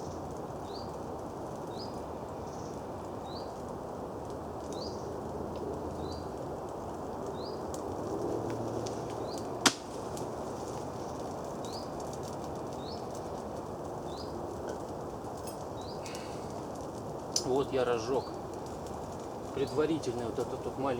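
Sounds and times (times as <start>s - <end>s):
small fire crackling: 0.0s - 20.9s
wood snapping in fire: 0.0s - 20.9s
bird chirping: 14.0s - 14.9s, 15.6s - 16.5s, 17.6s - 18.4s.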